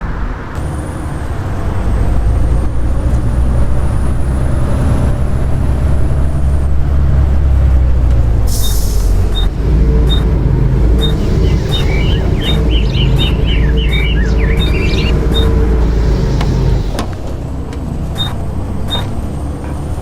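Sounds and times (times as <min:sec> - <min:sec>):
bus diesel engine running: 0:00.0 - 0:20.0
hiss of air: 0:08.5 - 0:09.4
high-pitched whine: 0:08.6 - 0:17.0
high beep: 0:11.0 - 0:15.5.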